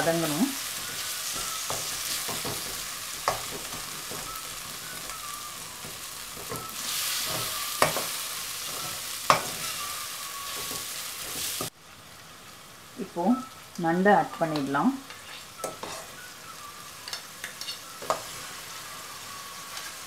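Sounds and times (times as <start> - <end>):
masala sizzling in hot oil: 0.0 - 20.0
metal spatula scraping a pan: 15.1 - 16.2, 17.0 - 18.6
spatula clinking against pan: 17.0 - 18.2.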